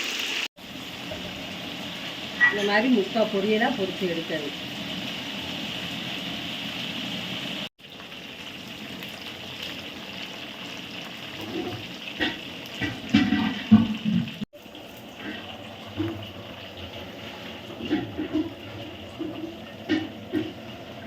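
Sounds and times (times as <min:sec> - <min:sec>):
chicken deep-frying in oil: 0:00.0 - 0:21.0
knocks and clatters in pan: 0:11.4 - 0:14.5, 0:17.5 - 0:20.8.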